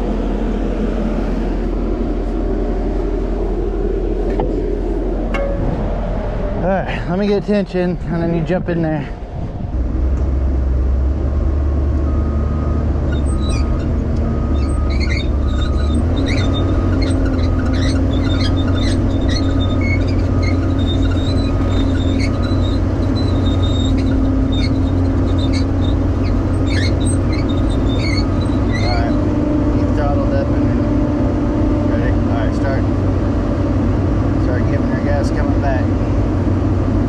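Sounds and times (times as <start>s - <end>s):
heavy diesel machinery drone: 0.0s - 37.0s
metallic clanks and squeaks: 5.3s - 5.8s, 13.0s - 30.5s.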